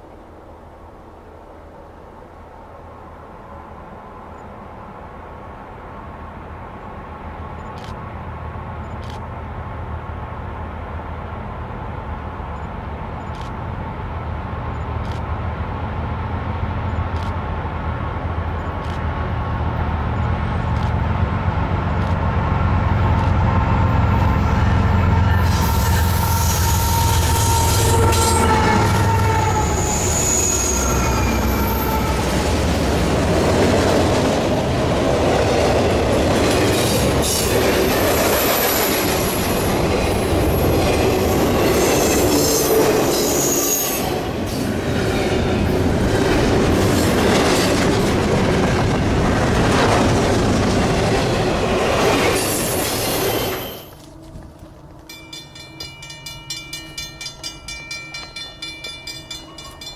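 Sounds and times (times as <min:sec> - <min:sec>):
freight train wheels on rail: 0:00.0 - 0:59.9
clickety-clack over rail joints: 0:18.4 - 0:24.2, 0:31.0 - 0:59.9
wheel squeal: 0:25.2 - 0:32.2, 0:52.4 - 0:54.4
regular ringing pulse: 0:55.1 - 0:59.9.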